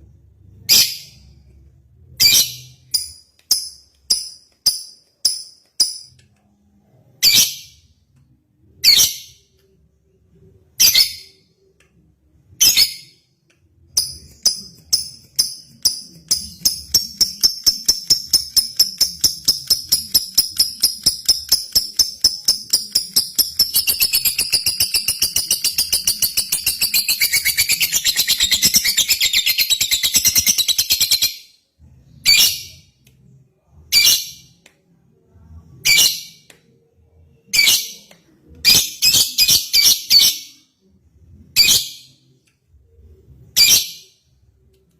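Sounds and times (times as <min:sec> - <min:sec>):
lovebird chirping and trilling: 0:14.0 - 0:31.5, 0:37.5 - 0:40.7.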